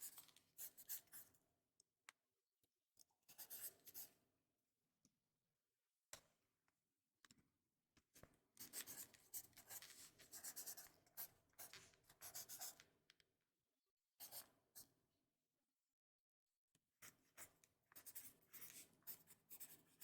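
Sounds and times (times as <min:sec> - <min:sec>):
pen scratching on paper: 0:08.6 - 0:12.8, 0:17.0 - 0:20.0.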